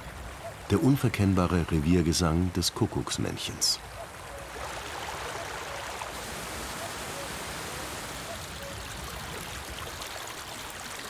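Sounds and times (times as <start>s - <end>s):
stream rushing: 0.0s - 11.0s
cuckoo calling: 5.4s - 8.9s.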